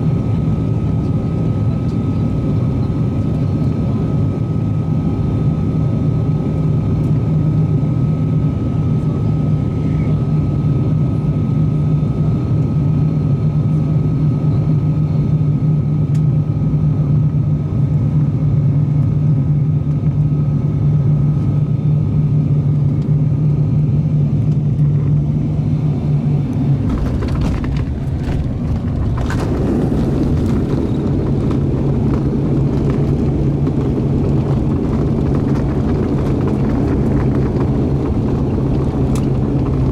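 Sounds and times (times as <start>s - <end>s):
propeller and engine drone: 0.0s - 39.9s
rough rushing noise: 26.5s - 39.9s.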